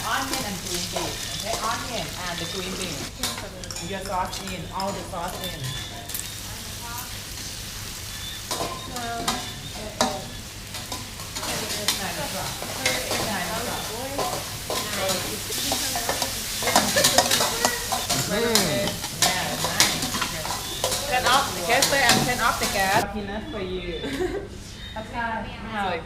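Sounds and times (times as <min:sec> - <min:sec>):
food sizzling in a wok: 0:00.0 - 0:23.0
spatula scraping and knocking pan: 0:07.4 - 0:23.0.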